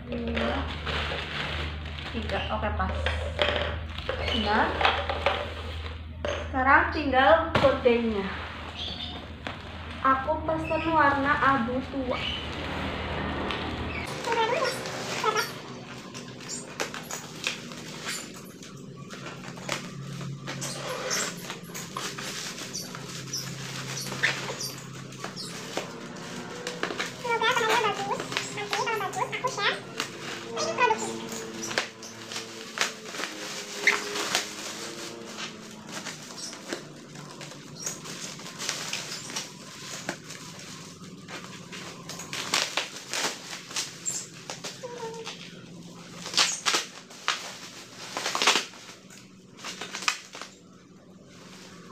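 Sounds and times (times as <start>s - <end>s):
plastic packaging crackling: 0.0s - 6.4s, 7.5s - 51.9s
short high squeaks: 20.5s - 34.5s.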